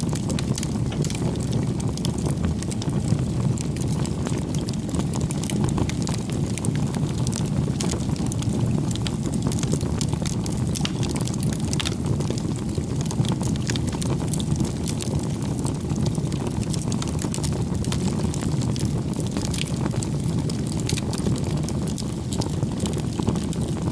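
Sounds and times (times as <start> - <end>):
wood fire crackling: 0.0 - 23.9.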